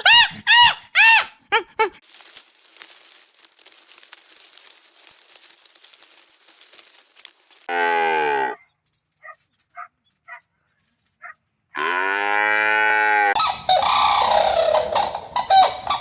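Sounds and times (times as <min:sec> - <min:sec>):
cow mooing: 0:07.7 - 0:08.7, 0:11.8 - 0:13.3.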